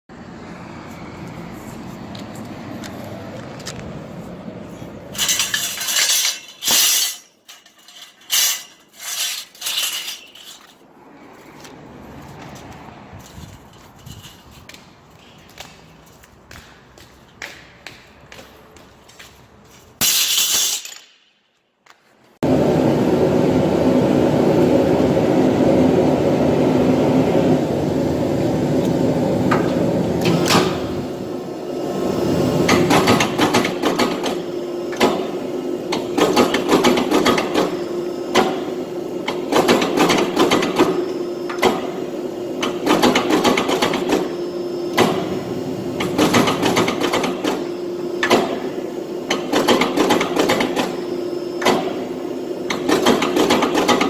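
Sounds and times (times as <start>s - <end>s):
machine humming: 22.4s - 54.0s.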